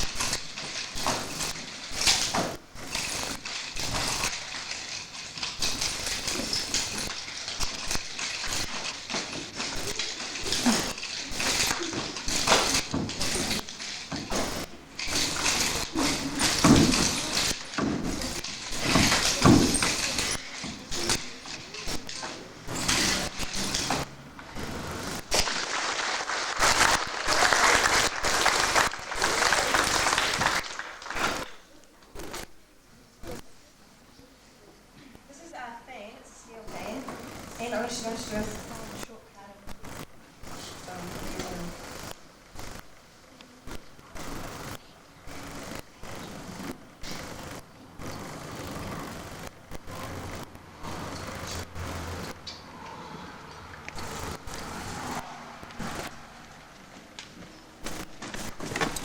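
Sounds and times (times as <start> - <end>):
nunchaku knocks: 0.0 - 24.1
nunchaku swinging whooshes: 0.0 - 30.5
audience clapping: 25.4 - 31.6.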